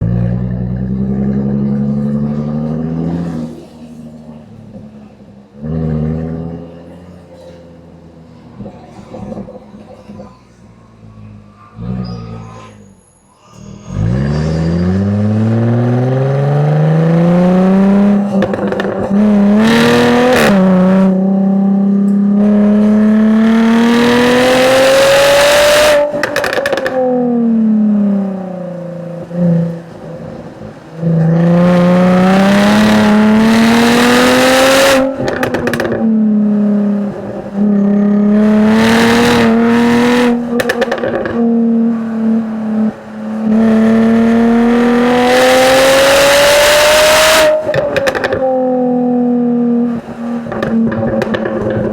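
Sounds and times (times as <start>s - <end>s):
car engine revving through gears: 0.0s - 12.9s, 13.8s - 51.9s
exhaust cracks: 17.0s - 21.3s, 21.9s - 46.5s, 47.1s - 51.9s.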